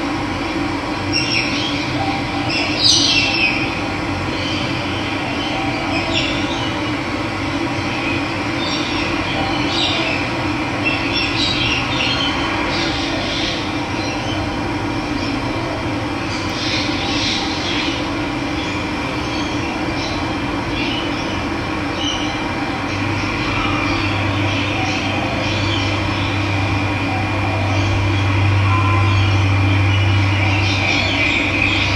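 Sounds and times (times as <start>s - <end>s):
birds chirping: 1.1s - 3.7s.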